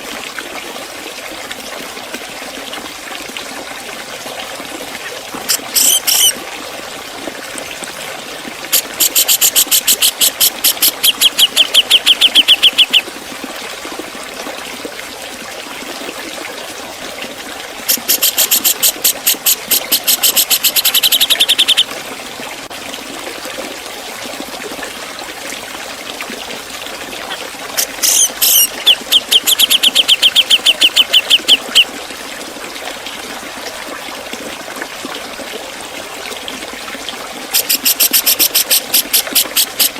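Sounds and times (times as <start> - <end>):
water trickling: 0.0 - 39.9
bulbul calling: 5.5 - 6.4, 8.7 - 13.0, 17.9 - 21.9, 27.8 - 31.9, 37.6 - 39.9.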